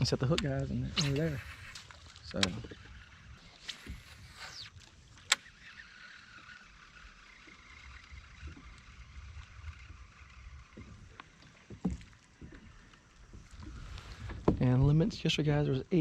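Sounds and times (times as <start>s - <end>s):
water and wind rumble: 0.0s - 16.0s.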